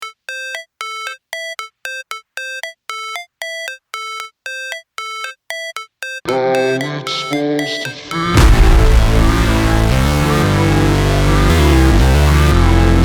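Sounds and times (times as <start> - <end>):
beeping synth melody: 0.0 - 13.0
hip-hop beat with bass: 6.2 - 13.0.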